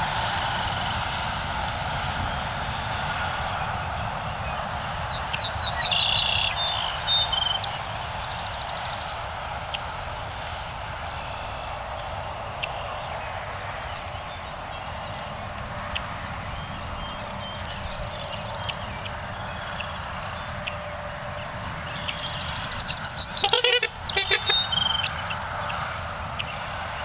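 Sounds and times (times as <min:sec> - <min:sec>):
outdoor background rush: 0:00.0 - 0:27.0
faint bird chirps: 0:22.0 - 0:25.4
bird rapid high notes: 0:23.3 - 0:25.4.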